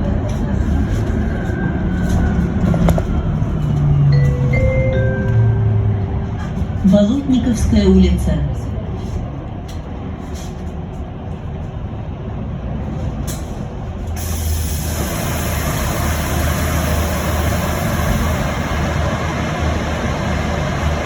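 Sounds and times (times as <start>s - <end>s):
low bus hum: 0.0s - 21.0s
compressed air hiss: 14.2s - 18.5s.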